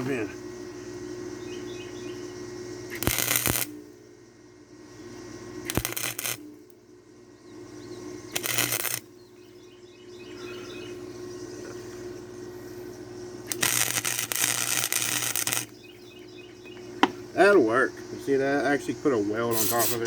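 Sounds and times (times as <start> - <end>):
crackling welding arc: 0.0 - 0.3, 2.9 - 3.9, 5.6 - 6.8, 8.3 - 9.1, 13.4 - 15.9, 18.3 - 20.0
insects chirping faintly: 0.0 - 20.0
steady low hum: 0.0 - 20.0.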